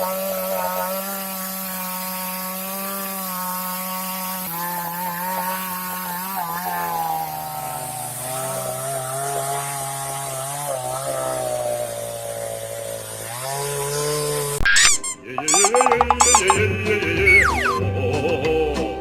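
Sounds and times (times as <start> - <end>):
chainsaw engine buzzing: 0.0 - 14.6.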